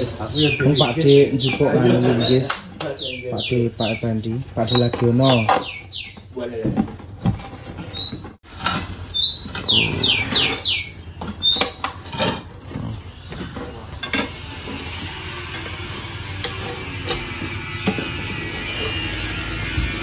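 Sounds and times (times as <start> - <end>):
building materials clattering: 6.6 - 14.8.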